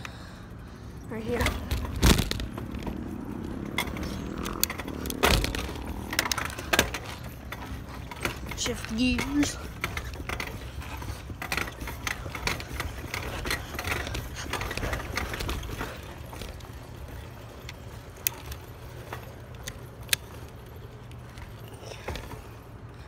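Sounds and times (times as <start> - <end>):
bicycle rattling and clicking: 0.0 - 23.0.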